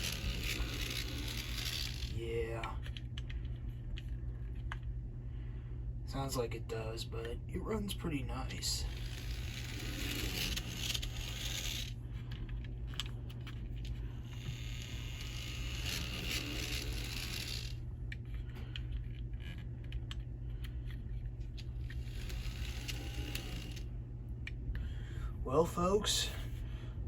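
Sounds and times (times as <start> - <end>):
model locomotive motor whirring: 0.0 - 3.4, 8.5 - 24.0
steady low hum: 0.0 - 27.0.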